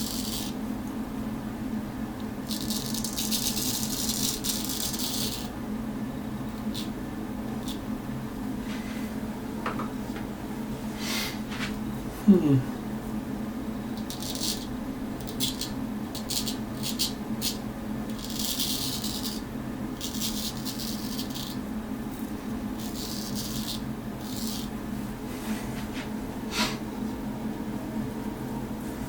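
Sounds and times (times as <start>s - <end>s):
razor scraping stubble: 0.0s - 0.6s, 2.5s - 5.5s, 14.0s - 19.4s, 20.0s - 21.6s, 22.8s - 24.7s.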